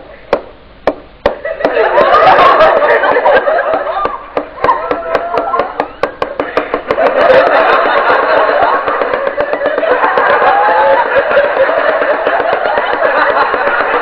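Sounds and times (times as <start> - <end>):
knife tapping on tabletop: 3.7 - 7.1, 8.6 - 13.9.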